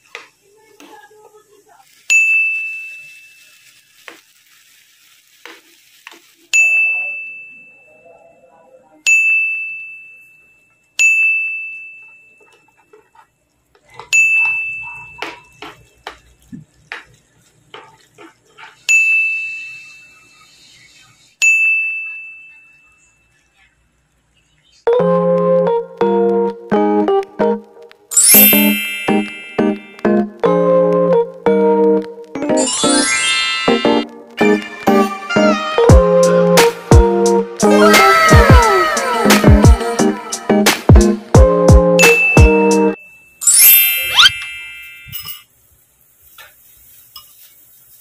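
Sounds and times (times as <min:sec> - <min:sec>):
utensil stirring in frying pan: 0:00.0 - 0:06.7, 0:12.4 - 0:21.3, 0:46.0 - 0:48.0
high bell-like chime: 0:28.1 - 0:30.1, 0:32.6 - 0:34.1, 0:42.0 - 0:45.4.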